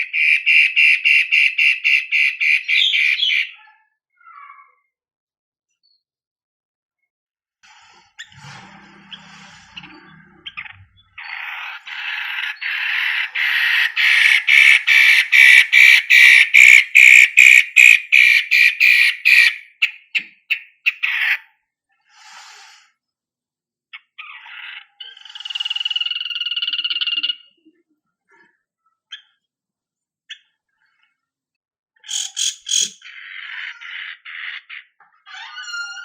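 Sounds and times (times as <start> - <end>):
bird harsh repeated call: 0.0 - 4.8, 9.1 - 21.6, 32.0 - 36.0.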